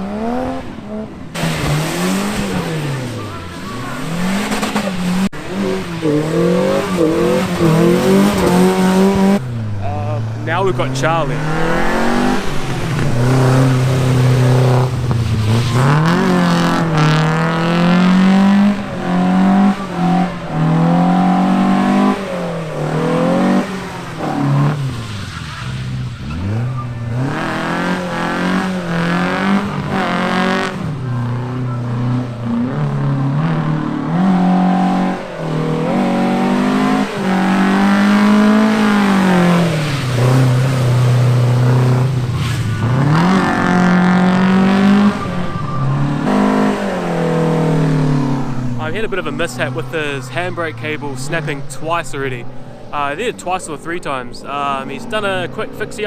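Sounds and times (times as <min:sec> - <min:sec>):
car engine revving hard: 0:00.0 - 0:53.4.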